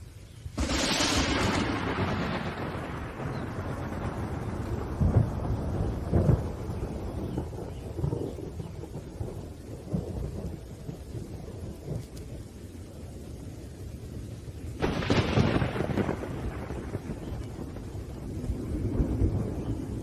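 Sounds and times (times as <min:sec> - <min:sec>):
heavy rain: 0:00.0 - 0:20.0
rolling thunder rumbles: 0:00.5 - 0:20.0
sharp thunderclap: 0:00.6 - 0:12.2, 0:14.8 - 0:20.0.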